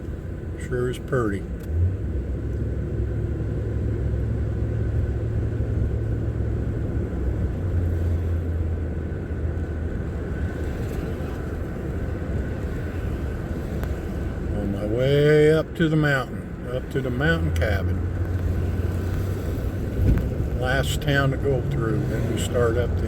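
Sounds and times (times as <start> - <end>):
vehicle road and engine rumble: 0.0 - 23.0.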